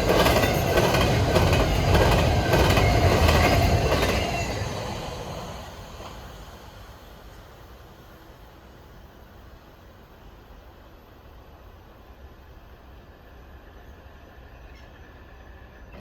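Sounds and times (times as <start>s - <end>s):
train wheels clicking over rails: 0.0s - 7.5s.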